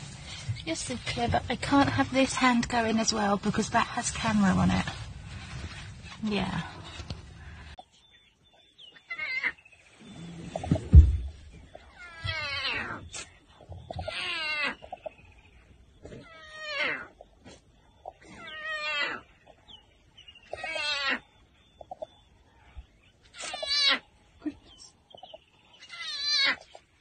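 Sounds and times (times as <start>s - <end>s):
thump: 10.6s - 11.5s.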